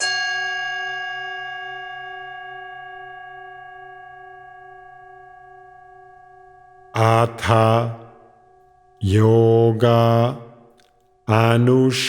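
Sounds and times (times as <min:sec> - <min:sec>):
singing bowl ringing: 0:00.0 - 0:07.0.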